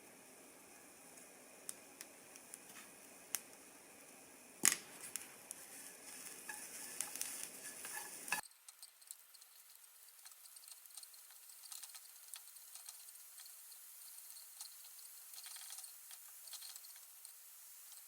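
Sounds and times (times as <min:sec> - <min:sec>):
small objects clicking and tapping: 0:04.6 - 0:05.6, 0:06.2 - 0:18.0
rustling: 0:04.9 - 0:18.0.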